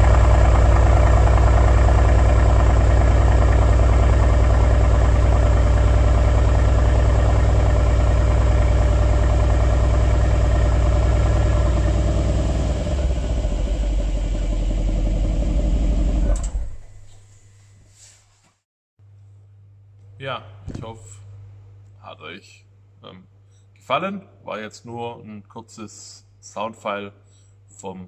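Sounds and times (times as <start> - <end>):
car engine idling: 0.0 - 17.1.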